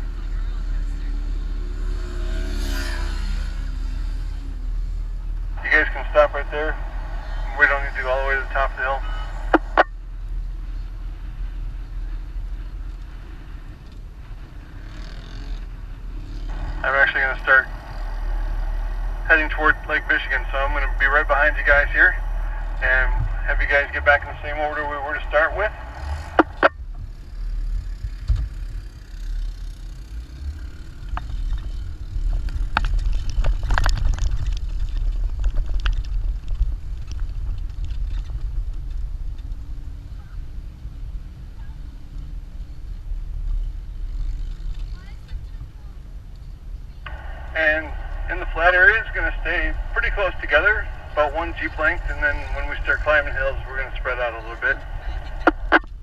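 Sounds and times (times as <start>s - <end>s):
car engine rumbling: 0.0s - 56.0s
wind noise: 15.8s - 28.7s, 31.2s - 42.0s, 47.0s - 56.0s.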